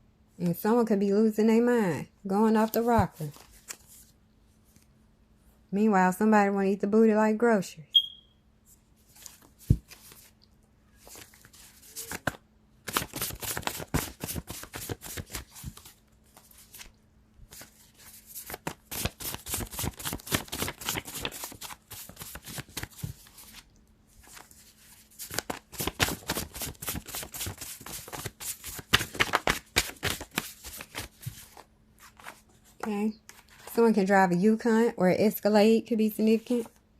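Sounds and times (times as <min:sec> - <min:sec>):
cards being shuffled by hand: 0:09.0 - 0:10.4, 0:11.0 - 0:33.7.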